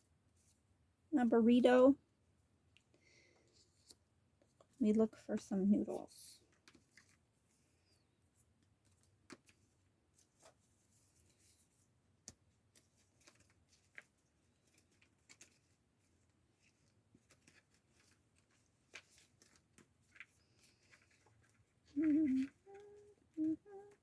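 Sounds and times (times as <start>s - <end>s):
sticker sheets rustling and clicking: 8.6s - 24.0s.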